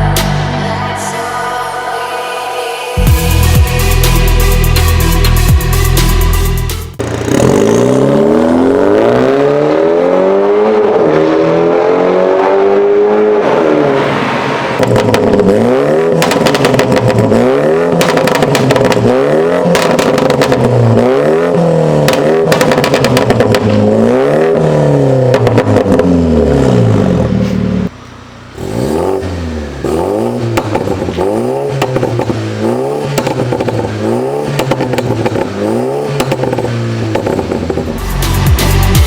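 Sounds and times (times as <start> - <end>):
car engine revving: 3.0 - 39.0
exhaust crackling pops: 13.5 - 24.2, 25.2 - 28.6, 29.8 - 38.1.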